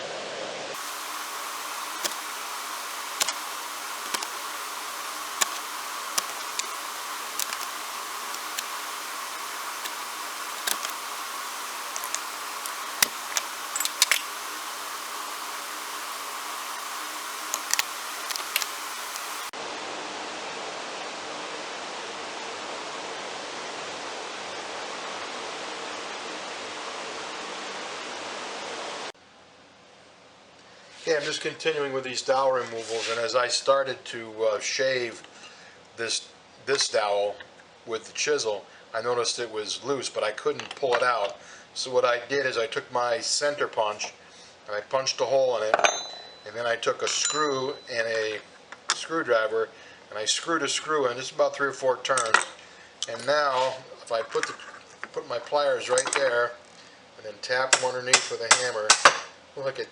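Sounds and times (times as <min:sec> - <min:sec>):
steady hiss: 0:00.8 - 0:19.5.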